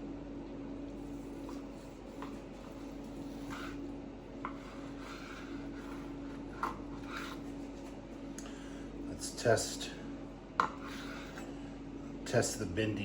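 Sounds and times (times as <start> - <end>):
steady low hum: 0.0 - 13.0
knife slicing on cutting board: 1.1 - 3.8.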